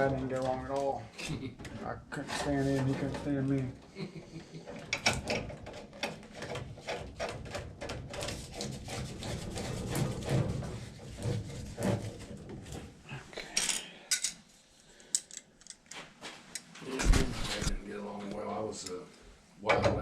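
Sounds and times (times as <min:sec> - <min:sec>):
hard objects clicking and knocking: 0:04.6 - 0:12.9.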